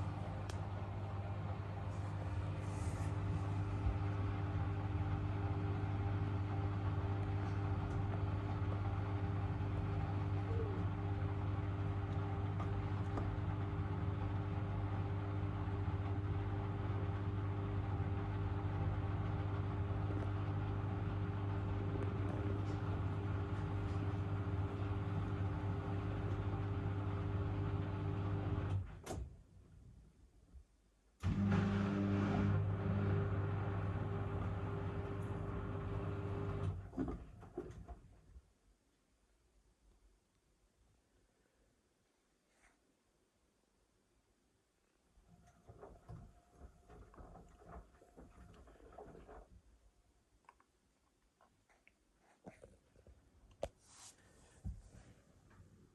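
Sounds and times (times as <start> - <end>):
washing machine humming: 0.0 - 29.4, 31.2 - 38.3, 45.2 - 49.9.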